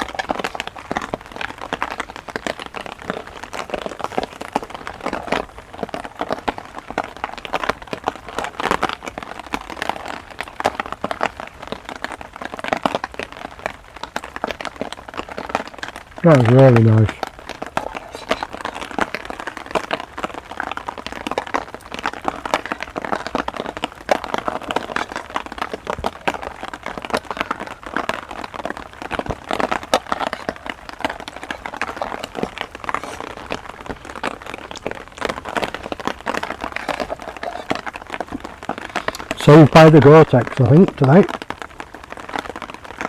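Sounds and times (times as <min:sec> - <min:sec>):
heavy rain falling: 0:00.0 - 0:43.0.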